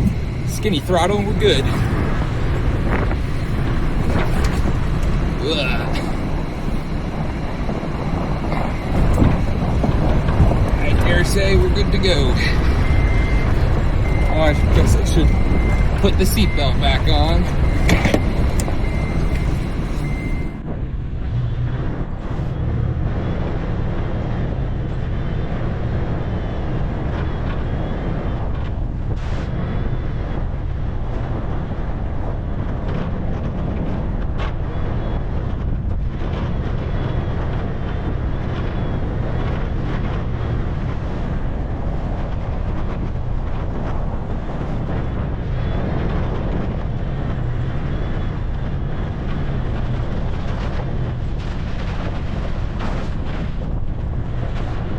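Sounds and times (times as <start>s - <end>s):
high warning tone: 0.0s - 20.8s
engine and tyres rumbling on dirt: 0.0s - 54.9s.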